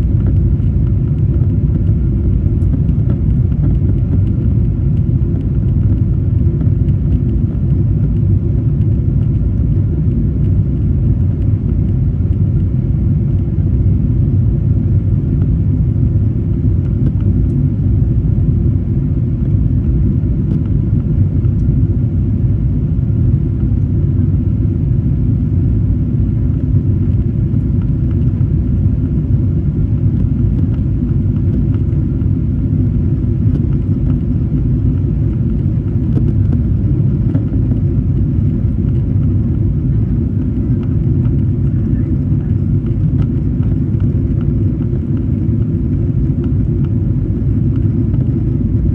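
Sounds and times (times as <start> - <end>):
jet engines deep rumble: 0.0 - 48.9
faint whining tones: 27.2 - 48.9.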